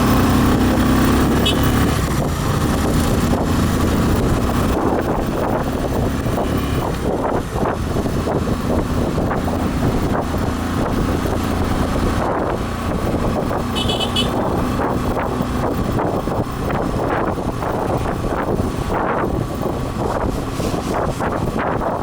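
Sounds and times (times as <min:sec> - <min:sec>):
motorcycle engine running: 0:00.0 - 0:22.0
wind on microphone: 0:00.0 - 0:22.0
short horn beep: 0:01.4 - 0:01.8, 0:13.7 - 0:14.5.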